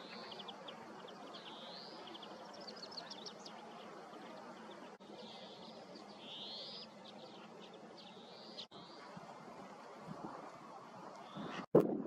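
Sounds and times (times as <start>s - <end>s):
birds calling: 0.0s - 9.2s.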